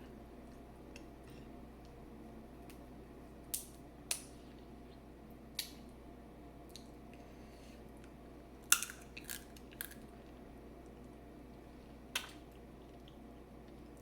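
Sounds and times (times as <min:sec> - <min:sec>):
crab shells snapping: 0:08.7 - 0:10.0.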